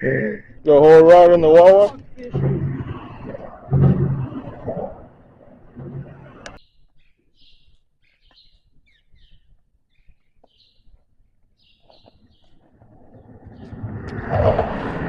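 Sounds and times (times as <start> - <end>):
birds chirping: 0.0 - 14.6
rushing noise: 13.5 - 15.0.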